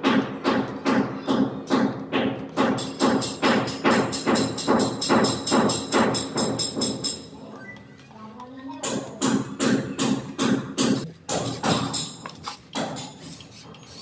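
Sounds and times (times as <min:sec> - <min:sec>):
percussive beat: 0:00.0 - 0:07.3.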